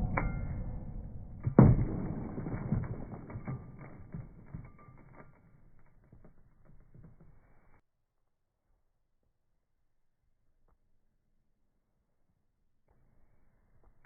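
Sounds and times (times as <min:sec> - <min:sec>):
low rumble: 0:00.0 - 0:04.8
knocks: 0:01.4 - 0:05.5.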